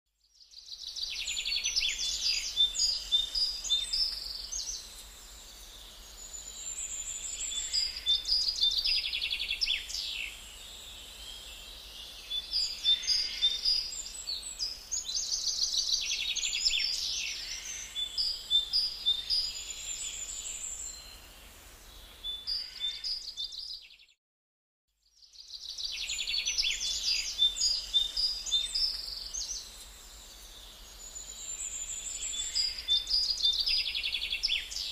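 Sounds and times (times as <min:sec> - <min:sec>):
birds chirping and trilling: 0:00.5 - 0:24.1, 0:25.2 - 0:34.9.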